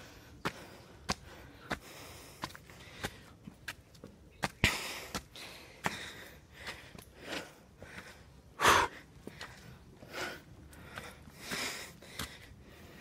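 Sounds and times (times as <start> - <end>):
person breathing hard: 0.0 - 3.4, 4.6 - 13.0
footsteps on stone: 0.3 - 8.2, 9.1 - 13.0.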